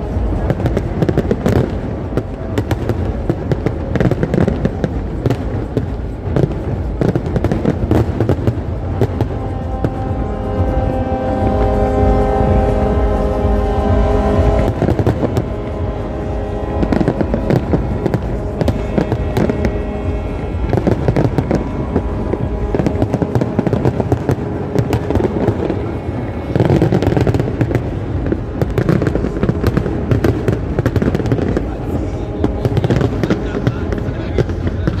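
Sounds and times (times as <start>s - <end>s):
fireworks crackling and popping: 0.0s - 35.0s.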